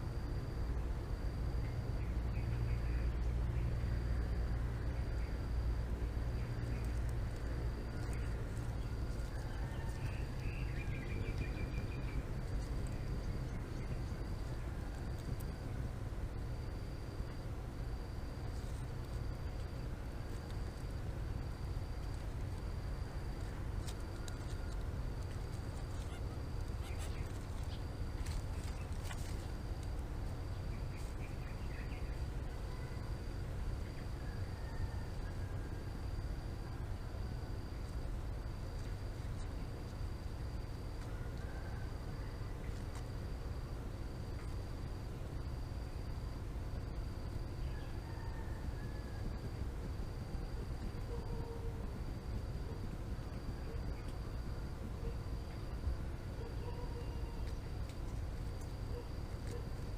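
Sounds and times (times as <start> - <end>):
faint chirps: 0.0 - 38.0
high-pitched insect trill: 0.0 - 59.9
steady low rumble: 0.0 - 59.9
bird chirps: 9.4 - 12.3.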